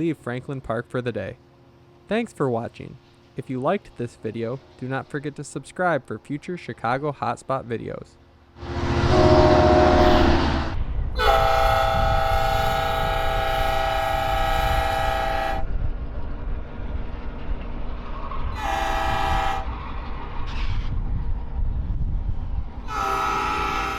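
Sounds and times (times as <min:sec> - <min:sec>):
passing train rumble: 0:01.2 - 0:07.1, 0:07.8 - 0:23.9
locomotive air horn blasts: 0:08.6 - 0:15.7, 0:18.5 - 0:19.8, 0:22.8 - 0:23.9.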